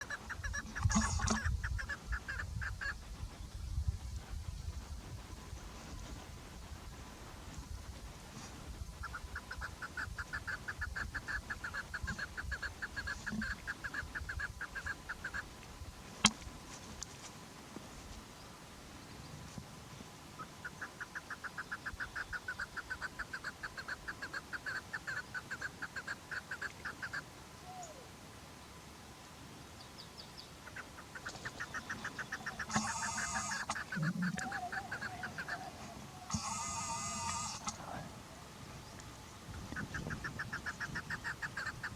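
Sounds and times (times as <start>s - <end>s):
partridge clucking calls: 0.0s - 3.4s, 8.8s - 15.6s, 20.4s - 27.3s, 30.6s - 38.0s, 38.8s - 41.9s.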